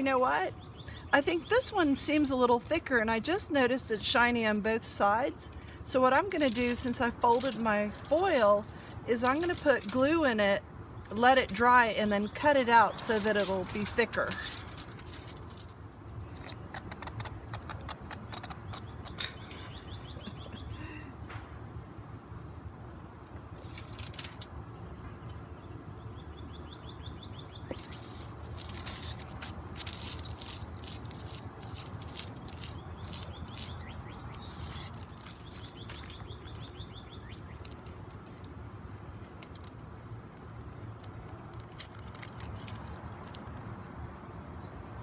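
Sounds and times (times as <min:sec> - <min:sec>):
aluminium foil crinkling: 0:05.5 - 0:10.4, 0:11.1 - 0:18.6, 0:23.5 - 0:24.5, 0:27.7 - 0:36.8, 0:37.6 - 0:38.5, 0:39.1 - 0:39.8, 0:40.7 - 0:43.3.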